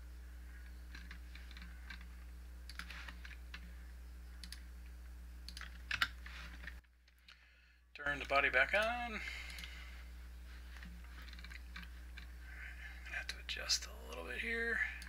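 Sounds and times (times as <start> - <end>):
low electrical hum: 0.0 - 15.0
computer mouse and keyboard clicking: 0.6 - 3.7, 4.4 - 4.7, 5.5 - 7.4, 10.8 - 12.3.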